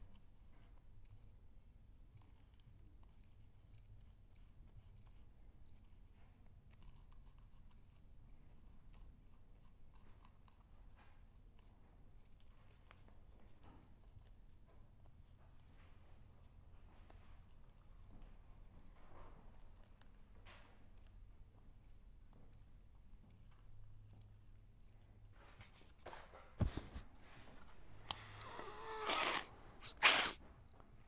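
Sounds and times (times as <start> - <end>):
cricket chirping: 1.0 - 1.3, 3.2 - 5.8, 7.7 - 8.4, 11.6 - 13.0, 16.9 - 18.1, 23.3 - 23.5, 28.2 - 29.5.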